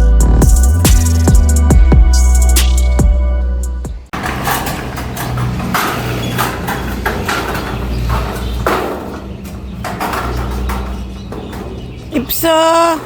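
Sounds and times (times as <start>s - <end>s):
knocks and clatter: 4.1s - 12.2s.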